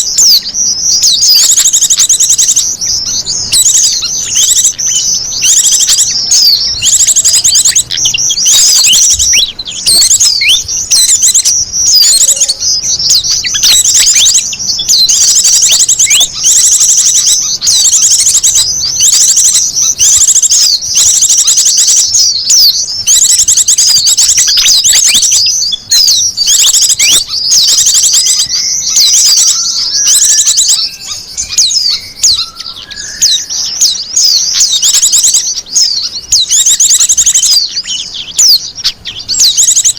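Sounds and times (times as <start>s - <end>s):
small birds chirping and trilling: 0.0s - 39.9s
softer lower bird calls: 0.0s - 39.9s.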